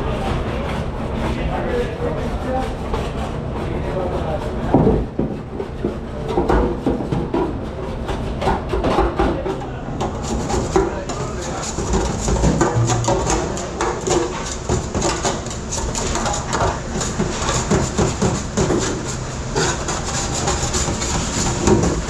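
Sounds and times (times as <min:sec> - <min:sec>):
dishes and utensils clattering: 0:04.7 - 0:22.0
machine rumble: 0:09.8 - 0:17.6.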